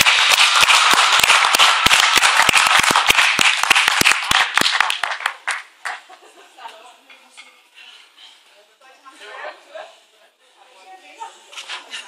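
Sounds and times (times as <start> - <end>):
people clapping: 0.0 - 6.2.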